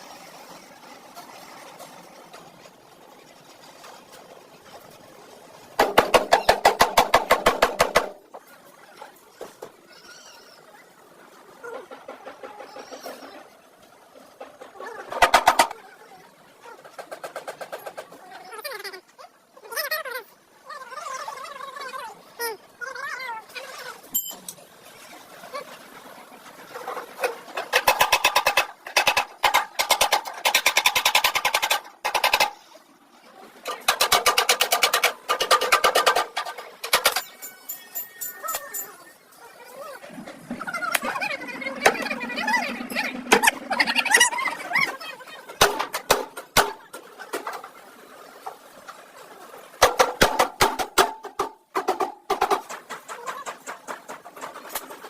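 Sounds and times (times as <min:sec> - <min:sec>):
rapid mechanical tapping: 0:05.8 - 0:08.4, 0:15.1 - 0:15.8, 0:27.5 - 0:32.6, 0:33.6 - 0:37.3.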